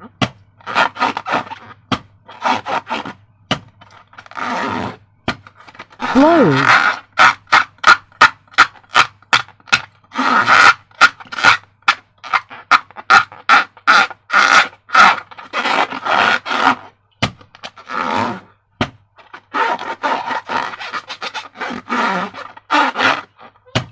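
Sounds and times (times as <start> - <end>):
balloon being inflated: 6.0 - 7.0.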